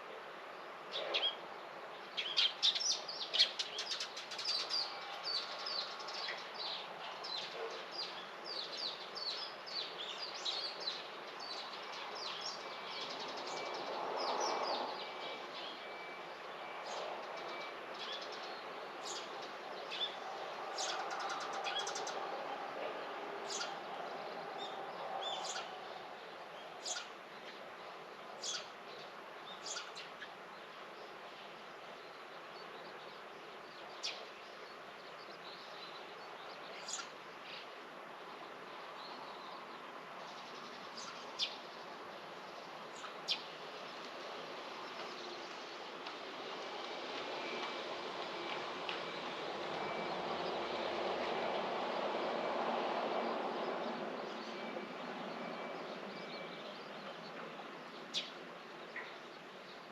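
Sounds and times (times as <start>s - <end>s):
faint steady background noise: 0.0s - 59.9s
small birds chirping: 26.6s - 27.6s, 28.4s - 30.7s, 32.0s - 37.7s, 53.8s - 59.9s.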